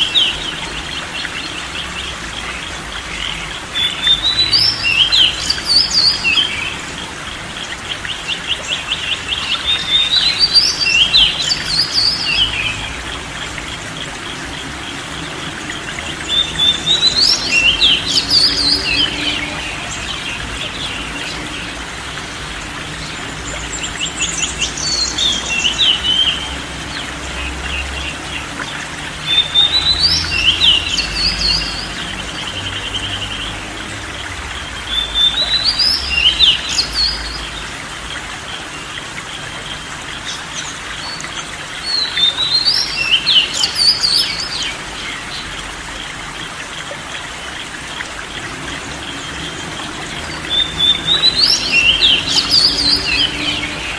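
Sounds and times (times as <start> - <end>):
songbird chirping: 0.0 - 53.9
trickling water: 0.0 - 53.9.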